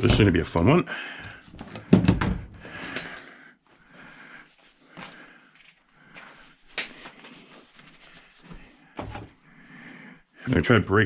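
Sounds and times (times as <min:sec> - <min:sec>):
handling and scuffing noises: 0:04.6 - 0:09.4.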